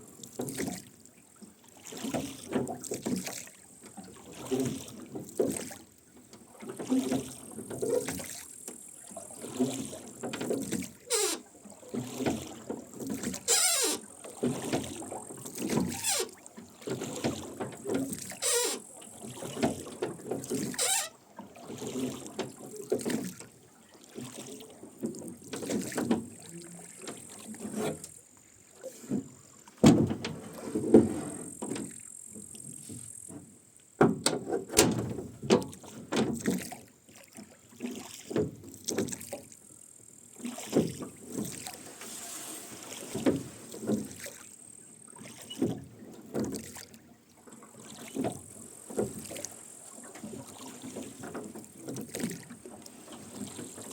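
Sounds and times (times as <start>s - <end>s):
oars splashing: 0.0s - 53.9s
oarlocks creaking: 11.1s - 11.5s, 13.5s - 14.1s, 15.9s - 16.4s, 18.3s - 18.9s, 20.7s - 21.2s.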